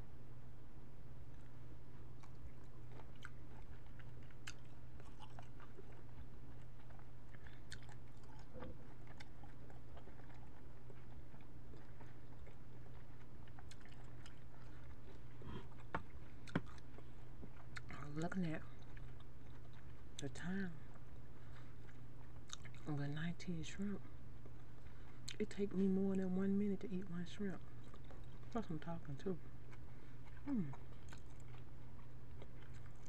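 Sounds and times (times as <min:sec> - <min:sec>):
low hum: 0:00.0 - 0:33.0
chewing shrimp: 0:01.3 - 0:22.9, 0:27.6 - 0:33.0.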